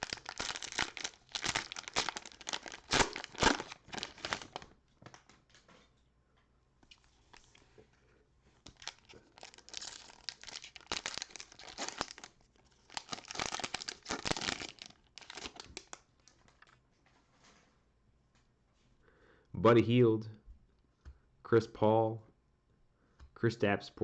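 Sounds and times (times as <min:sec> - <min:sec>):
cellophane wrapper crinkling: 0:00.0 - 0:05.6, 0:06.9 - 0:07.8, 0:08.5 - 0:16.8.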